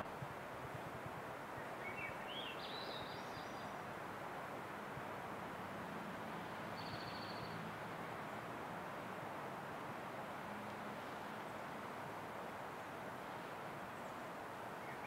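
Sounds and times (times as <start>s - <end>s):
outdoor background noise: 0.0s - 15.0s
small bird singing: 1.6s - 3.7s, 6.8s - 7.6s.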